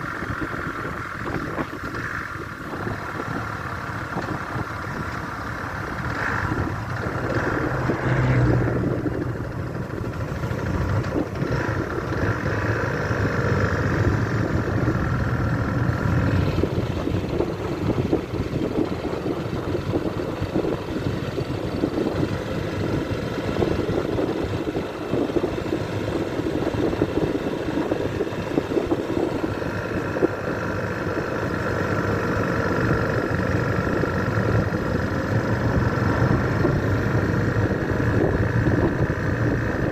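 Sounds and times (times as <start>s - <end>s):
wind noise on microphone: 0.0s - 31.3s, 32.9s - 39.9s
motorcycle engine running: 0.0s - 39.9s.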